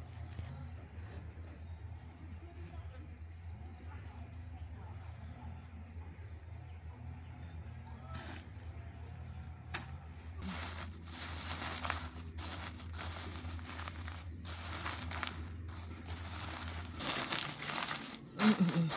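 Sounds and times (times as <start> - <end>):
rustling crinkling handling: 9.8 - 18.9.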